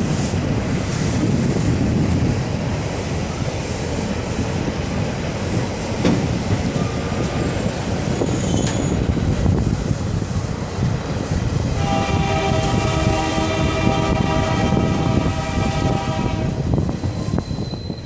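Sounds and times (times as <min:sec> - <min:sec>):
train rumbling on rails: 0:00.0 - 0:18.0
train horn blast: 0:11.7 - 0:16.6.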